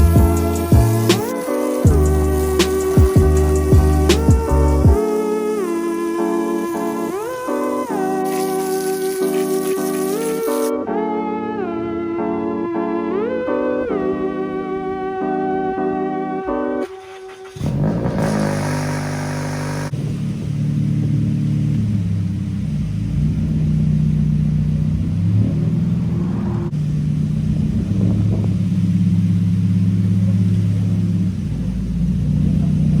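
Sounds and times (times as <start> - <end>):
car engine starting and revving: 0.0 - 5.0, 16.8 - 33.0.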